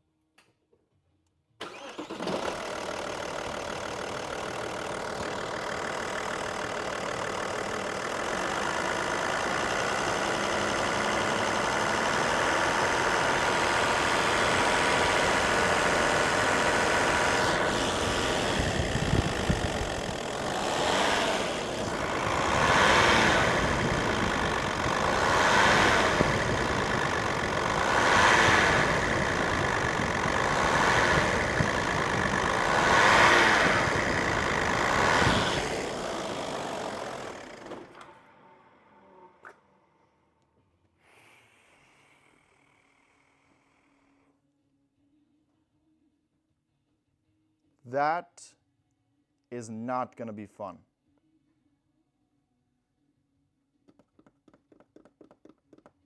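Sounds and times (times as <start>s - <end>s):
diesel engine idling: 1.6s - 37.9s
engine revving: 1.6s - 38.2s
diesel engine cranking and starting: 1.6s - 39.6s.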